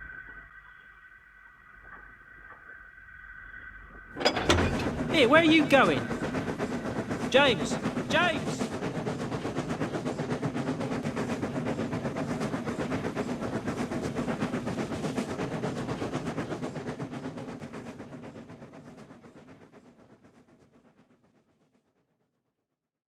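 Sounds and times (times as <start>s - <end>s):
steam locomotive chuffing: 4.2s - 20.5s.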